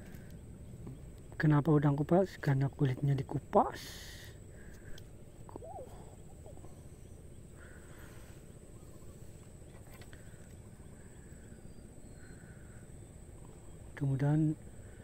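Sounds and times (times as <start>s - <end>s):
high-pitched hum: 5.2s - 9.4s.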